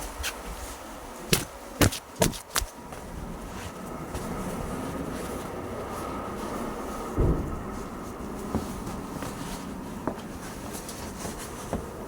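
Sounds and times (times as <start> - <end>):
steady rumbling: 0.6 - 12.0
heavy low thump: 7.1 - 8.9.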